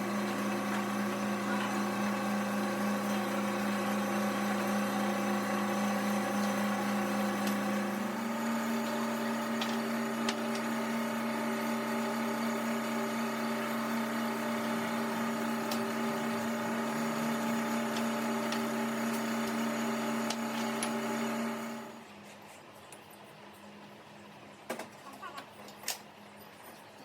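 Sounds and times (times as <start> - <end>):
motor humming: 0.0 - 22.0.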